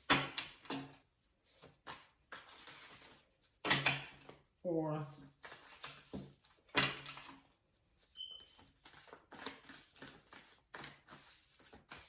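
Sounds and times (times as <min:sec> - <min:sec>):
cards being shuffled: 0:01.4 - 0:03.3, 0:05.2 - 0:07.4, 0:08.4 - 0:12.0.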